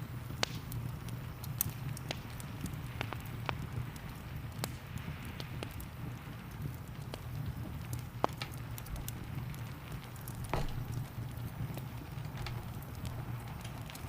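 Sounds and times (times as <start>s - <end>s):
wood fire crackling: 0.0s - 14.0s
low steady rumble: 7.0s - 14.0s.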